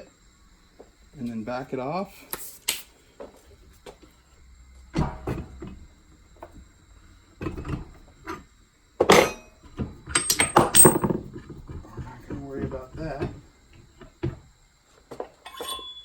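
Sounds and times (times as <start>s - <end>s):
knocks on metal: 5.0s - 5.7s
metal tools clanking and clinking: 9.0s - 11.2s, 15.4s - 16.0s.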